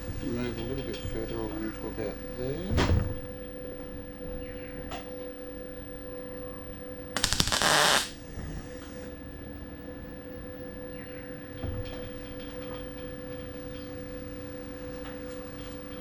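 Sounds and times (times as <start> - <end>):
welder crackling: 7.2 - 9.0
steady welder hum: 7.2 - 9.1.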